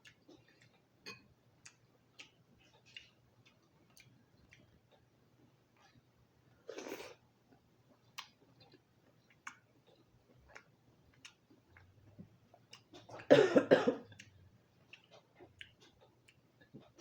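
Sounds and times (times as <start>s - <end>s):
chewing lobster: 14.1s - 17.0s.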